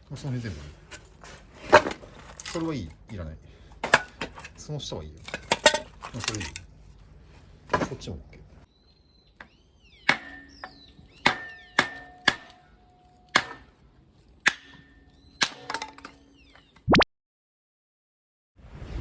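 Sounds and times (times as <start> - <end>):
firewood logs knocking together: 0.8 - 6.7, 7.7 - 8.2.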